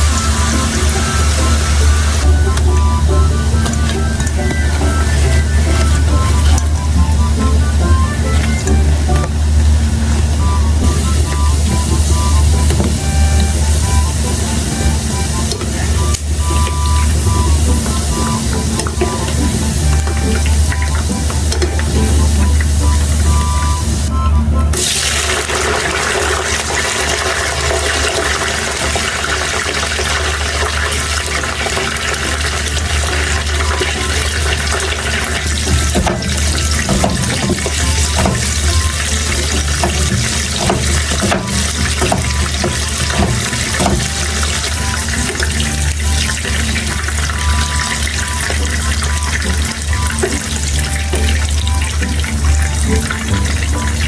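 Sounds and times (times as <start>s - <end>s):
background music: 0.0s - 54.0s
tap running into sink: 10.2s - 23.8s, 24.8s - 54.0s.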